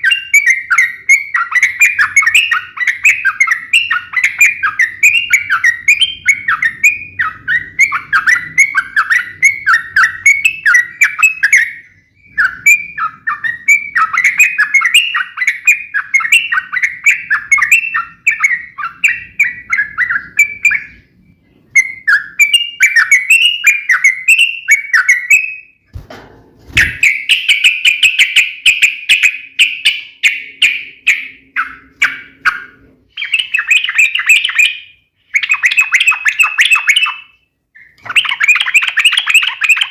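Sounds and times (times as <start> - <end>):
bird chirping song: 0.0 - 26.0, 26.7 - 39.9
low thump: 26.0 - 27.0.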